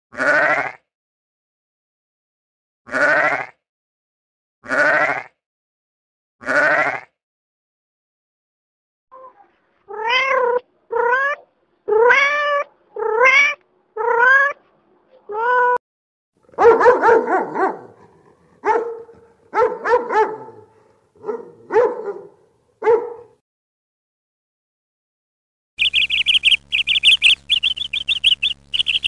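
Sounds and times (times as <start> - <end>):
rough animal calls: 25.8 - 29.0.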